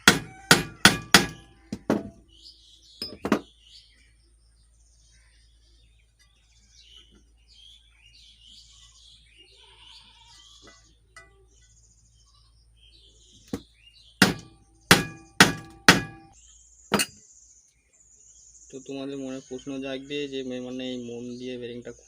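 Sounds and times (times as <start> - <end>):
hammer striking metal shaft: 0.0 - 2.2, 14.2 - 17.1.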